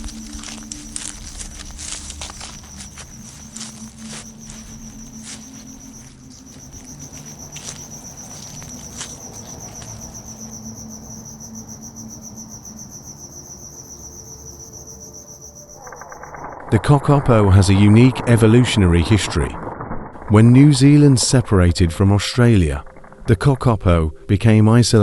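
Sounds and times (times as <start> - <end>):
insect pulsing trill: 0.0 - 23.7
low hum: 0.0 - 25.0.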